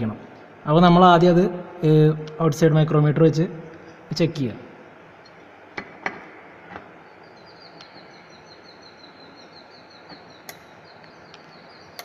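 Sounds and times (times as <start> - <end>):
small bird chirping: 7.0 - 12.0.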